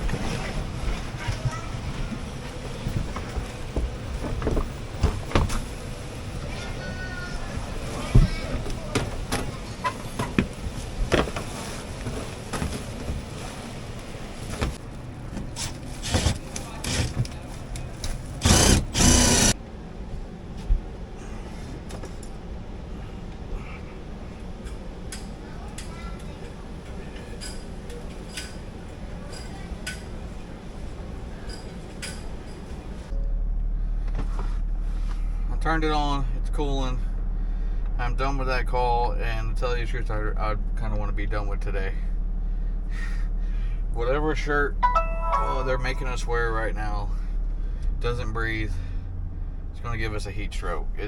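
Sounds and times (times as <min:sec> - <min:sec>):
steady background hum: 0:00.0 - 0:51.0
steady low rumble: 0:32.3 - 0:51.0.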